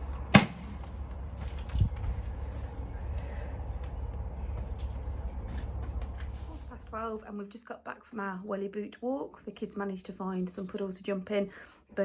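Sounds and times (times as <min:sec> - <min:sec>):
wind buffeting microphone: 0:01.2 - 0:05.4.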